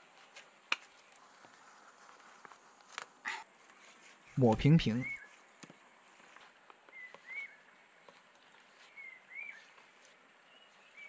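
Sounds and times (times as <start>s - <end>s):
faint bird chirps: 3.3s - 5.4s, 6.9s - 11.0s.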